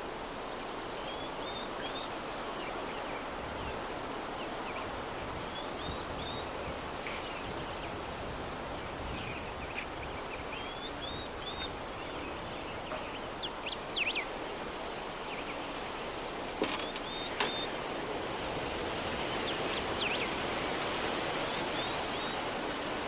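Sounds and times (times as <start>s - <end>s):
soft breeze blowing: 0.0s - 23.0s
small birds chirping: 8.8s - 17.9s, 19.1s - 20.5s.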